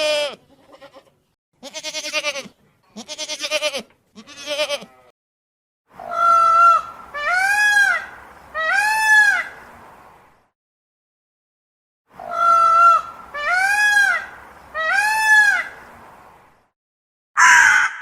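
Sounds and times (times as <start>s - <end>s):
farm animal bleating: 0.0s - 5.1s.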